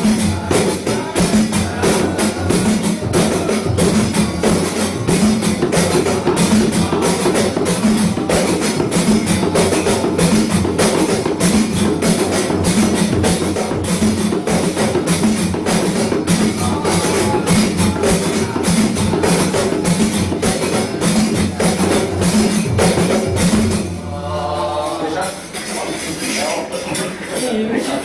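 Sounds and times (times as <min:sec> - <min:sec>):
frame drums played fast: 0:00.0 - 0:26.8.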